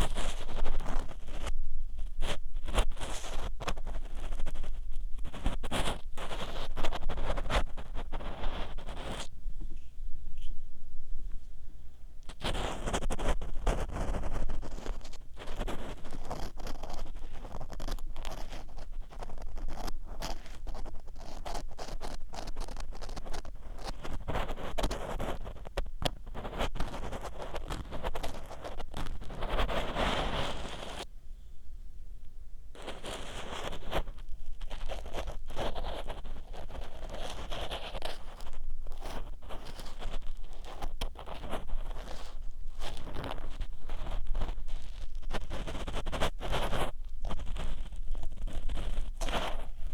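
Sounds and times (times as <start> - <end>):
ear pick scraping inside ear: 0.0 - 9.3, 12.3 - 31.1, 32.8 - 49.9
clicks and crackles: 32.8 - 49.9.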